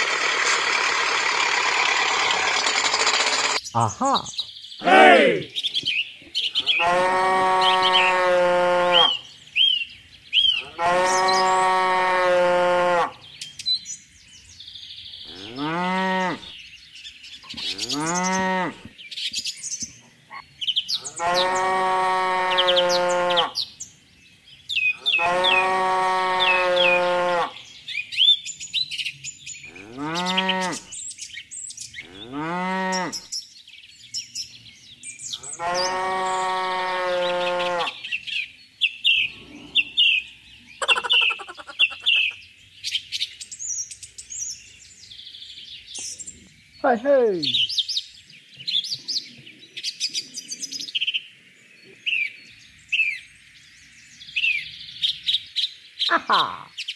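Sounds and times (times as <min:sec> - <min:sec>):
small birds chirping: 0:02.6 - 0:56.9
cattle mooing: 0:04.8 - 0:05.5, 0:06.6 - 0:09.2, 0:10.6 - 0:13.1, 0:17.6 - 0:18.8, 0:21.1 - 0:23.5, 0:25.1 - 0:27.6, 0:29.7 - 0:30.8, 0:35.6 - 0:38.0.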